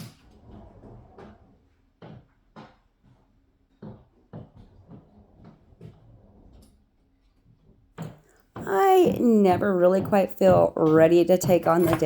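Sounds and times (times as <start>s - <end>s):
objects knocking and clicking: 8.1s - 12.0s.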